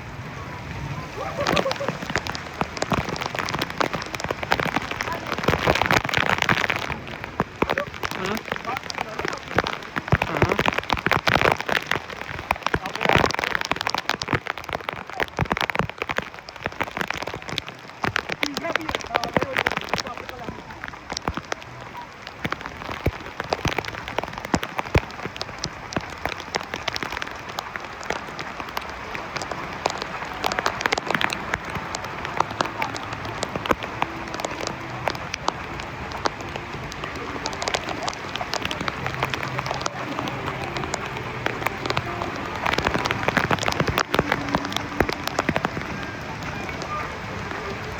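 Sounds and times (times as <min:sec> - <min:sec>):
heavy rain: 0:00.0 - 0:47.9.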